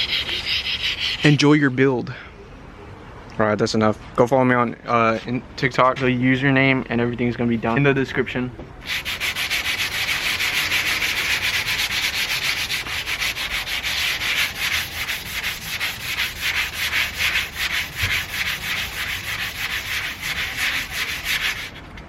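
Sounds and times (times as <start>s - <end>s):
hand sanding with sandpaper: 0.0s - 1.4s, 8.8s - 21.8s.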